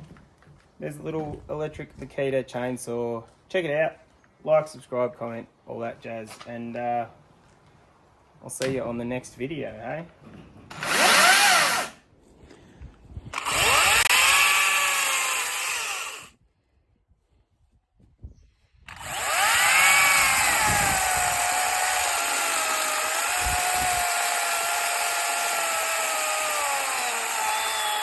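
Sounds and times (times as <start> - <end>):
cordless chainsaw whining: 10.7 - 12.0, 13.4 - 16.3, 18.9 - 28.0.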